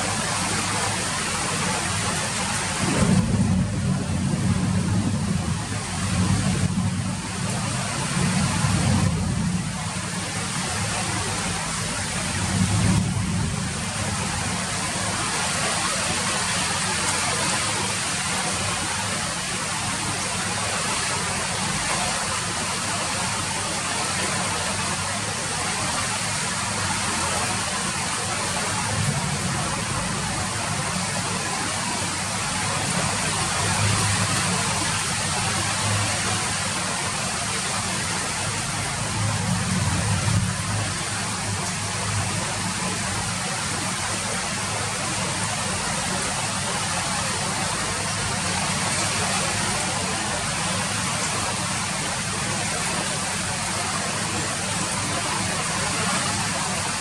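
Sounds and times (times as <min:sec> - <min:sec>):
steady rain hiss: 0:00.0 - 0:57.0
low rumble: 0:01.9 - 0:15.3.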